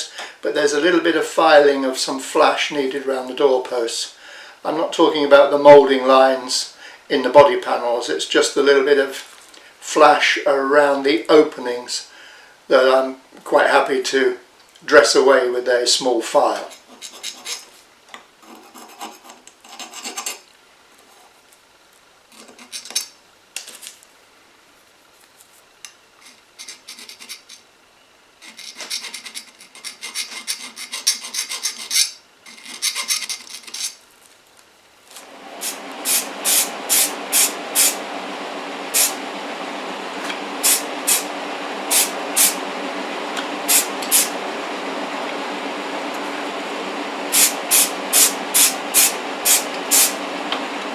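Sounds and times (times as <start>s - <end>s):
steady hiss: 0.0s - 18.4s, 20.3s - 50.9s
hand file rasping on metal: 16.6s - 17.7s, 26.3s - 27.6s, 28.4s - 34.0s
short sharp bursts: 35.6s - 38.0s, 38.9s - 39.2s, 40.5s - 42.7s, 43.6s - 44.4s, 47.3s - 50.2s.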